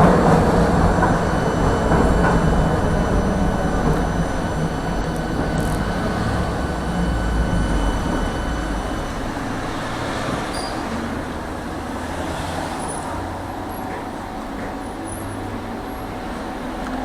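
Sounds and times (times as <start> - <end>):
low motor hum: 0.0 - 12.1
tram wheels rolling on rails: 0.0 - 17.0.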